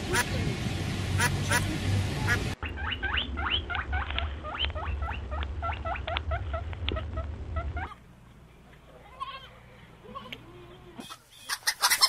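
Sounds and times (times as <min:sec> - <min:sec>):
low rumble: 0:00.0 - 0:07.9
duck quacking: 0:01.2 - 0:01.7.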